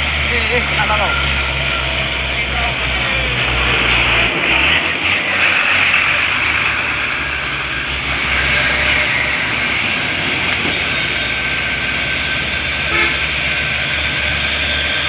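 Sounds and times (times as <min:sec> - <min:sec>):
heavy vehicle engine drone: 0:00.0 - 0:15.0
road and tyre noise: 0:00.0 - 0:15.0.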